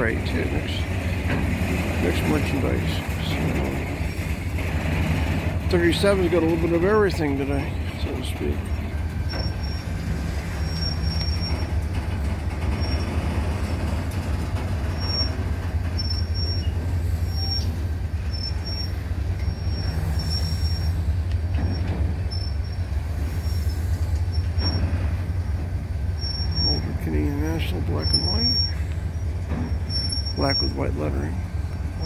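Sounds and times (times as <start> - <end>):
freight cars rumbling over rails: 0.0 - 32.0
high-pitched wheel squeals: 5.1 - 25.4, 26.0 - 32.0.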